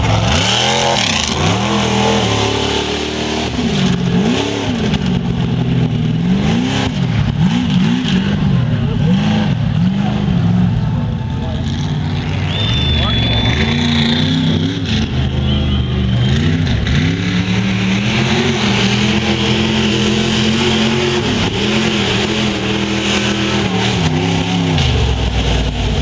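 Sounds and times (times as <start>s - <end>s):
truck engine revving hard: 0.0s - 26.0s.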